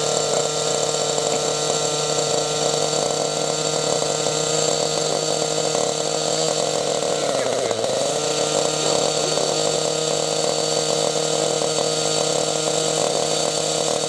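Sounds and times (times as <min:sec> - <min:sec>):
engine exhaust idling: 0:00.0 - 0:14.0.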